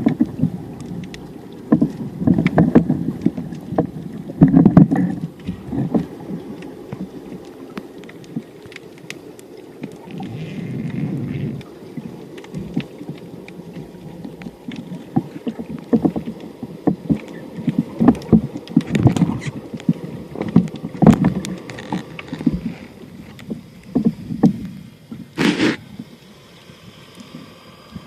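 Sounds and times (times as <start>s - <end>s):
water sloshing and splashing: 0.0s - 28.0s.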